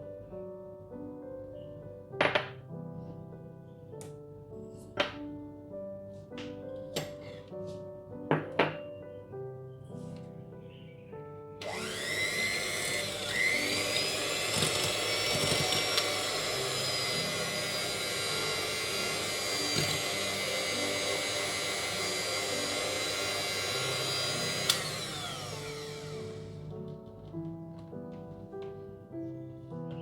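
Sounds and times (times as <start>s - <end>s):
electric mixer motor whining: 11.6s - 27.1s
mixer switch click: 24.7s - 25.1s.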